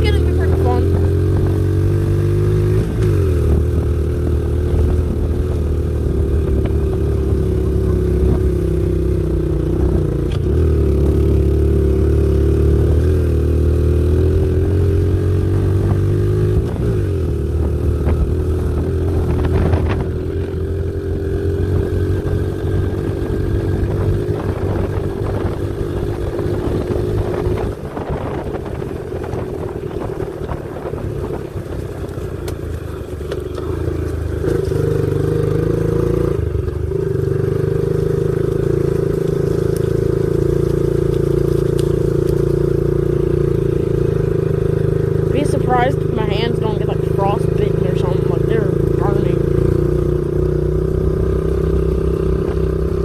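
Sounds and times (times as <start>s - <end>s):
small motorbike engine running: 0.0s - 53.0s.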